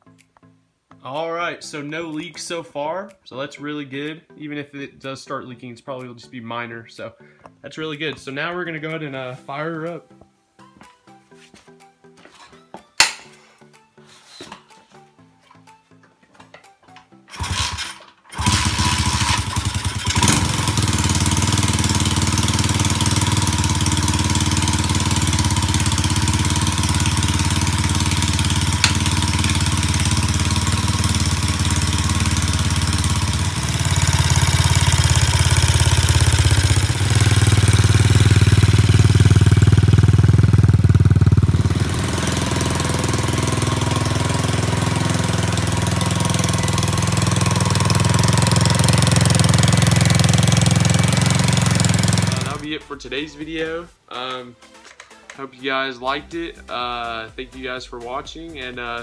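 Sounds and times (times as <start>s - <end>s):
motorbike engine starting and running: 17.3s - 52.7s.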